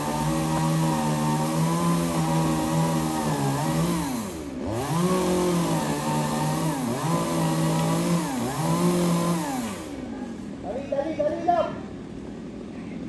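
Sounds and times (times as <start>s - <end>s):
chainsaw running at high revs: 0.0s - 10.0s.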